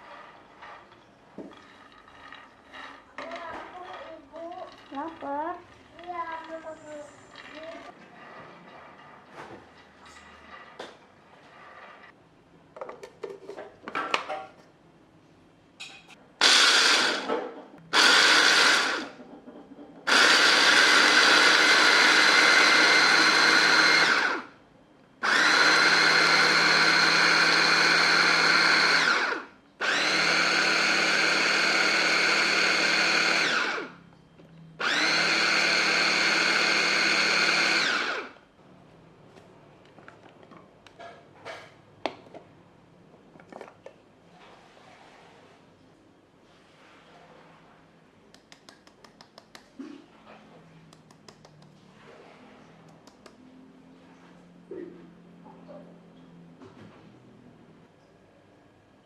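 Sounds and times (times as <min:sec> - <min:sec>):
blender motor whining: 0:16.4 - 0:17.3, 0:17.9 - 0:19.2, 0:20.1 - 0:24.5, 0:25.2 - 0:34.0, 0:34.8 - 0:38.4.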